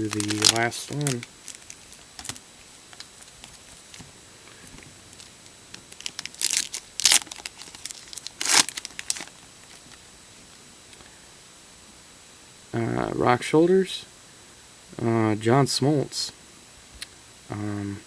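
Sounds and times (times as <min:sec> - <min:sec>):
wrapper tearing and crinkling: 0:00.0 - 0:04.0, 0:05.1 - 0:10.0.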